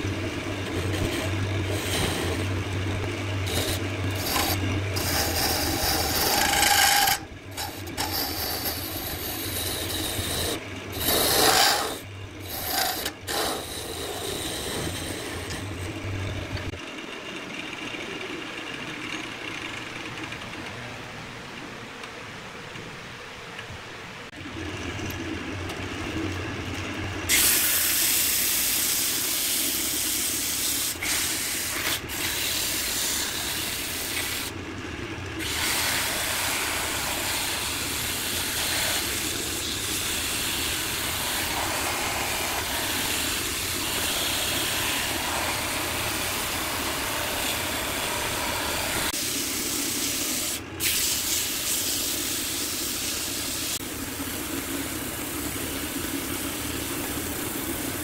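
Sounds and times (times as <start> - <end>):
wood lathe humming: 0.0 - 16.8, 35.3 - 49.2.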